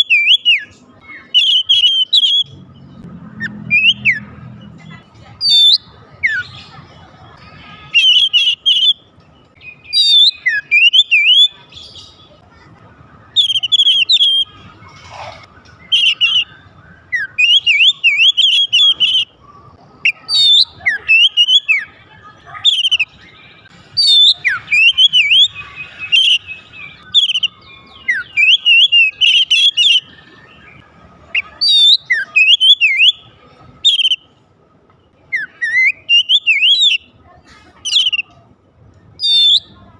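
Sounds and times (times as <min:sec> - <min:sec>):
bird singing whistled phrases: 0:00.0 - 0:02.6, 0:03.4 - 0:04.3, 0:05.4 - 0:06.6, 0:07.8 - 0:12.2, 0:13.3 - 0:14.6, 0:15.7 - 0:19.3, 0:20.0 - 0:22.0, 0:22.6 - 0:34.3, 0:35.3 - 0:37.1, 0:37.9 - 0:38.3, 0:39.2 - 0:39.8.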